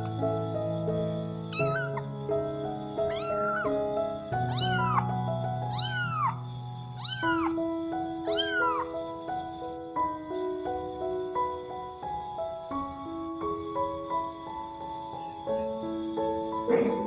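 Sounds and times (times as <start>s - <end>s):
kitten meowing: 1.5s - 2.1s, 3.1s - 3.8s, 4.4s - 7.6s, 8.2s - 9.0s
background music: 13.4s - 17.0s.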